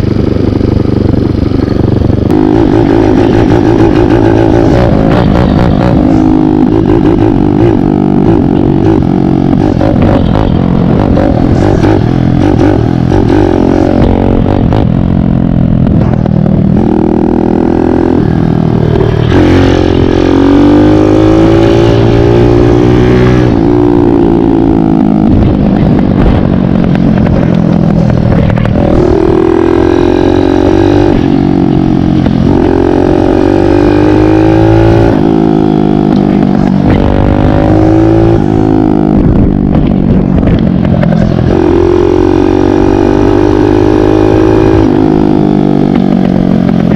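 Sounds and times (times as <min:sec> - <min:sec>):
dirt bike engine revving: 0:02.0 - 0:39.1, 0:40.5 - 0:45.6.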